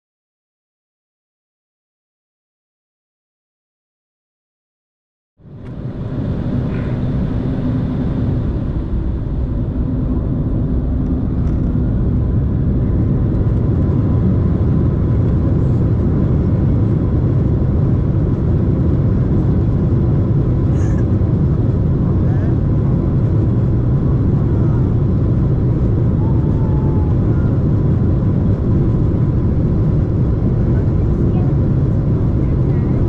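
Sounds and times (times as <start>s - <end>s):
jet engines roaring at take-off: 5.4s - 33.0s.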